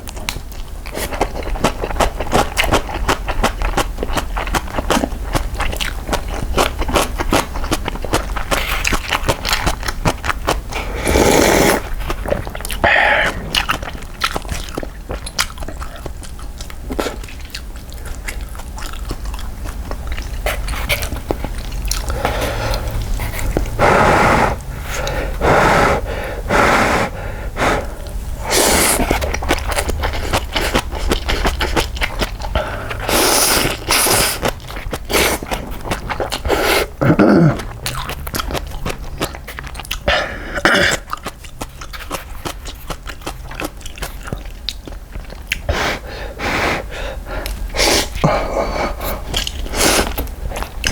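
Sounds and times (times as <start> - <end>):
wet chewing: 0.0 - 26.4, 27.8 - 50.9
slurping noodles: 10.7 - 15.0, 20.4 - 37.8, 47.8 - 50.9.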